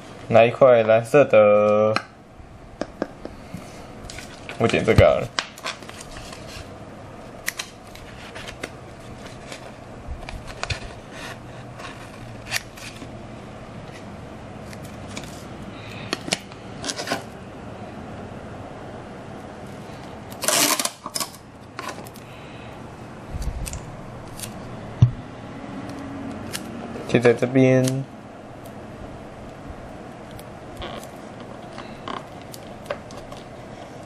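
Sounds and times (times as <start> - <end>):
scissors snipping: 25.8 - 26.7.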